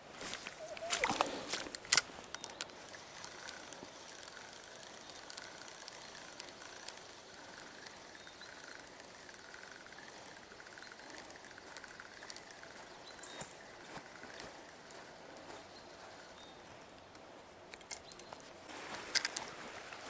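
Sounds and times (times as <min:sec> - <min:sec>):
fishing reel whirring: 0:00.6 - 0:16.4
reel clicking: 0:00.7 - 0:16.4.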